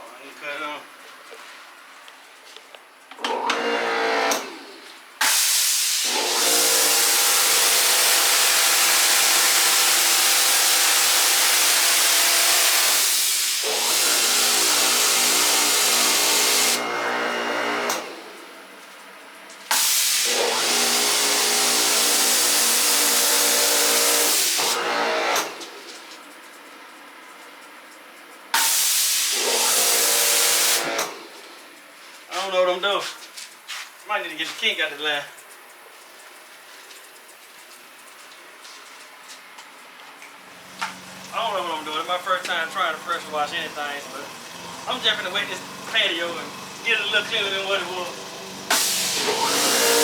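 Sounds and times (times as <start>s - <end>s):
pressure washer motor humming: 3.2s - 18.8s, 19.7s - 26.2s, 28.5s - 31.8s, 40.4s - 50.0s
water spraying hiss: 5.2s - 16.8s, 19.7s - 24.8s, 28.5s - 39.5s, 40.4s - 50.0s.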